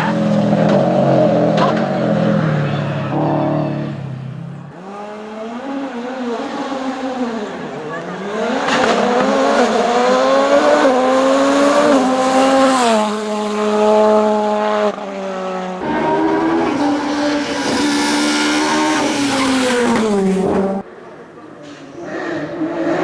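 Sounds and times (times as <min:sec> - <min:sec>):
racing car engine revving: 0:04.7 - 0:20.8.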